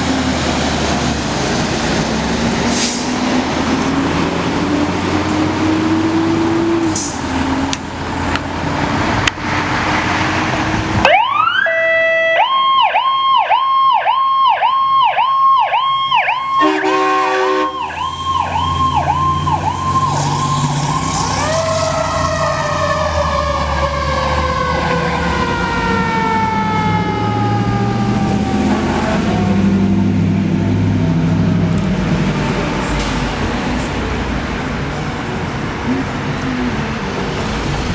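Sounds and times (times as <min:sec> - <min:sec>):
fire engine rumble: 0:00.0 - 0:37.9
mechanical siren winding down: 0:11.0 - 0:16.8, 0:17.7 - 0:29.6
siren yelping: 0:11.0 - 0:29.6
horn blast: 0:16.6 - 0:17.9.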